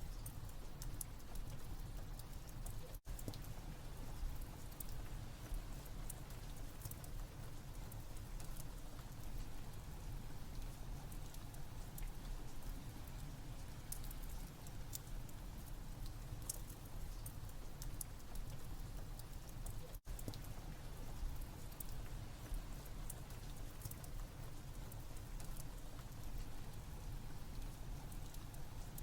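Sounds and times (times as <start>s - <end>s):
steady rain: 0.0s - 29.0s
fireplace crackling and popping: 0.1s - 29.0s.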